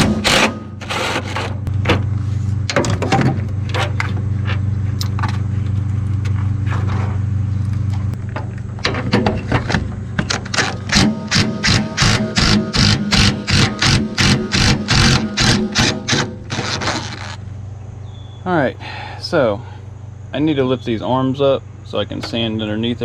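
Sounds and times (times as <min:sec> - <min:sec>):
excavator engine running: 0:00.0 - 0:17.9.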